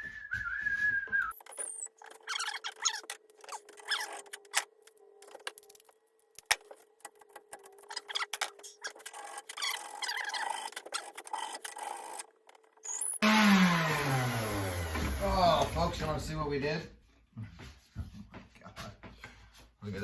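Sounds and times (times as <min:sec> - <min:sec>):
man whistling softly: 0:00.0 - 0:01.5
loud sound with falling pitches: 0:13.2 - 0:15.7.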